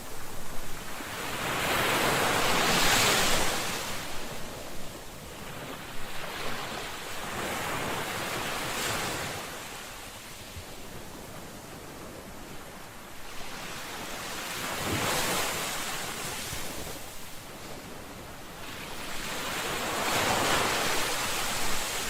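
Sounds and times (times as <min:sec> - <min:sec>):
waves washing on shore: 0:00.0 - 0:22.0.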